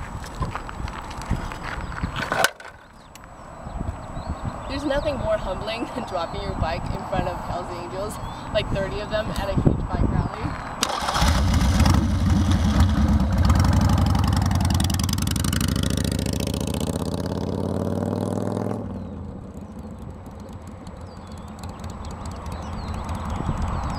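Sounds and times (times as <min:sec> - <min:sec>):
motorcycle engine pulling away: 0:10.8 - 0:23.9.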